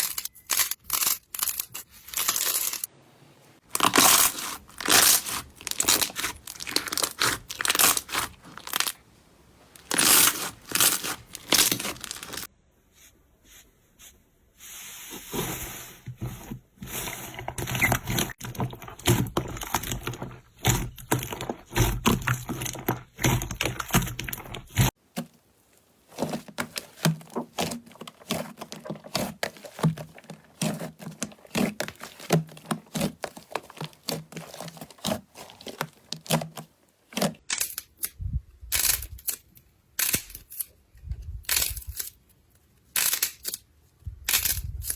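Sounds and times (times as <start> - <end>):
slime crackling and popping: 3.7 - 9.0, 9.8 - 12.5.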